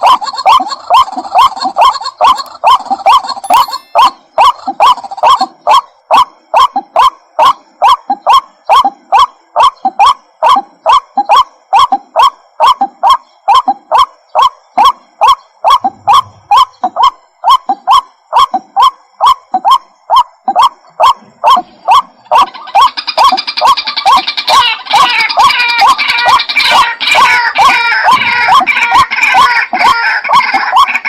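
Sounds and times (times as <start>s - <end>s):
bird calling short repeated notes: 2.1s - 5.5s, 9.6s - 31.0s.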